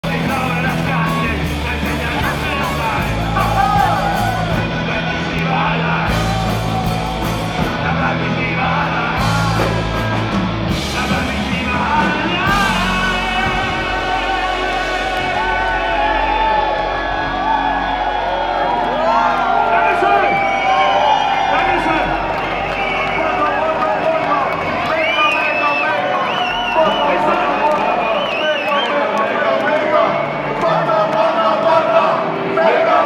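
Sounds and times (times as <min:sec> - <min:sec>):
person singing and shouting: 0:00.0 - 0:18.0
live band playing loudly: 0:00.0 - 0:28.2.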